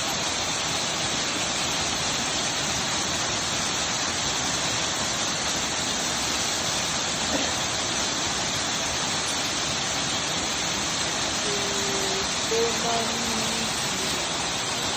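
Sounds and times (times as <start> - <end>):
waterfall rushing: 0.0 - 14.9
person's voice: 11.4 - 14.9.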